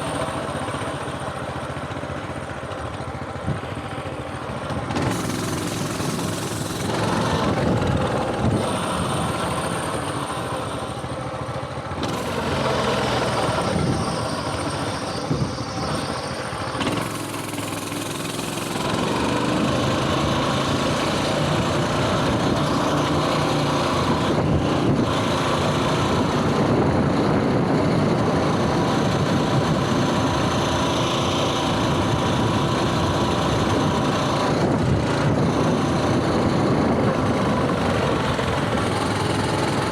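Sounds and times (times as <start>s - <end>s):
mini bike engine running: 0.0s - 39.9s.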